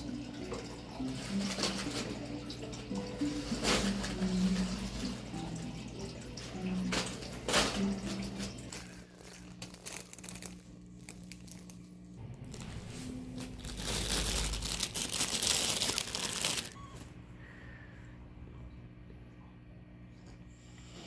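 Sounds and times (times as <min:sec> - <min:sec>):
crinkling rustling noise: 0:01.0 - 0:05.4, 0:06.2 - 0:17.1.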